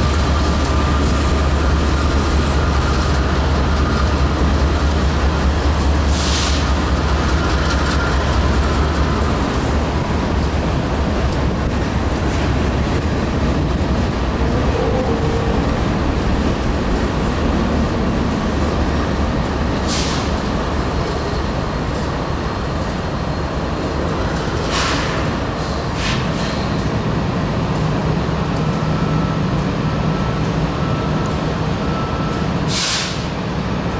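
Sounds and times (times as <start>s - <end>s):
freight train rumbling and rattling: 0.0s - 33.9s
air hissing: 32.7s - 33.3s.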